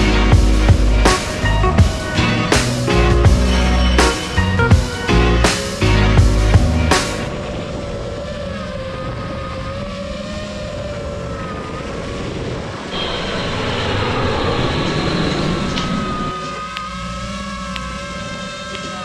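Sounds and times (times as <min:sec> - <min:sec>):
loud rushing sound: 0:00.0 - 0:08.2, 0:12.9 - 0:16.4
drone propellers whining: 0:00.0 - 0:19.0.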